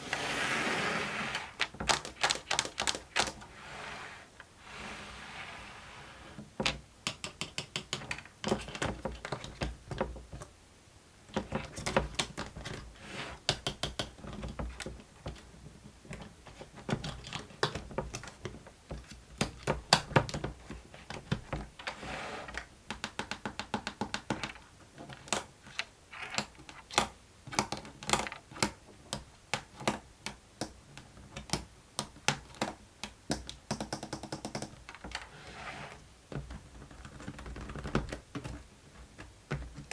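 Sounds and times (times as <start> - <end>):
plastic toy clicks and taps: 1.6 - 3.4, 7.0 - 10.0, 22.9 - 24.6, 26.4 - 35.1.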